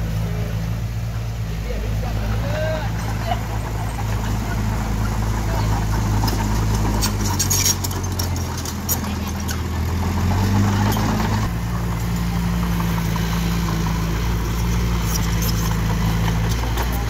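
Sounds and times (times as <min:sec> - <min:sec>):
diesel engine running: 0:00.0 - 0:17.0
light metal clanks: 0:03.0 - 0:12.9.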